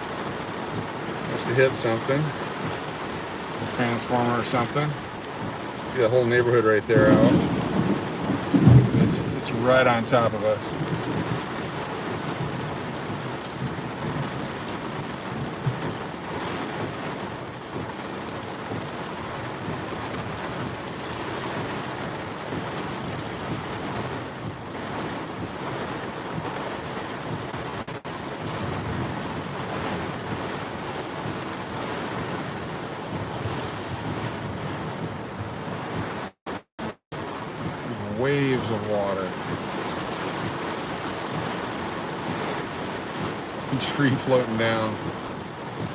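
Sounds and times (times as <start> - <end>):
strong wind: 0.0 - 36.4
heavy rain: 0.0 - 45.9.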